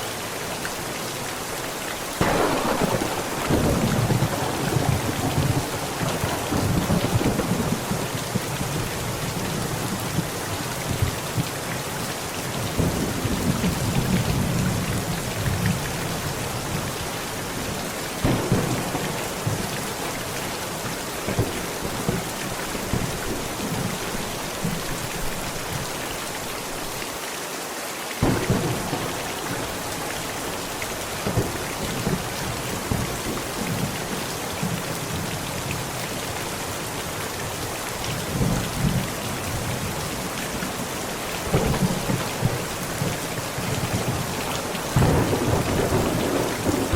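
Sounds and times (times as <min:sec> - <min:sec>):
heavy rain on a tent: 0:00.0 - 0:46.9
thunder rumbles: 0:02.2 - 0:11.3, 0:17.6 - 0:25.0, 0:28.2 - 0:35.3, 0:41.3 - 0:46.9.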